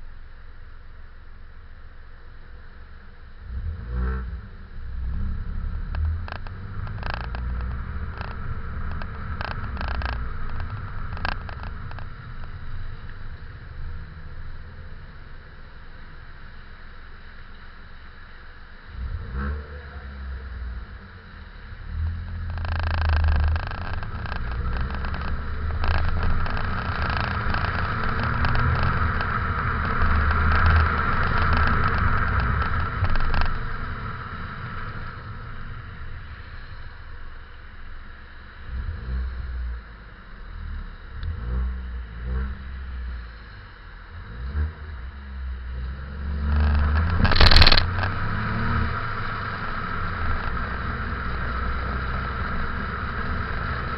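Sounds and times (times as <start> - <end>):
car engine and exhaust: 0.0 - 53.9
tyre noise: 5.0 - 15.6, 21.9 - 37.2, 45.9 - 53.9
sharp clatter: 5.8 - 15.5, 22.3 - 37.4, 46.2 - 53.9
small rattles: 5.9 - 16.0, 22.3 - 37.9, 46.2 - 53.9.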